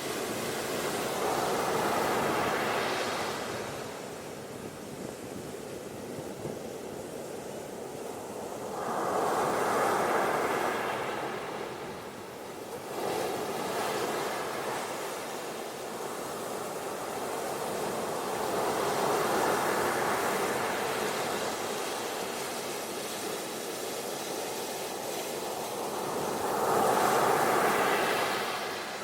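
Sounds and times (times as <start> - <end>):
ocean waves washing onto beach: 0.0 - 29.0.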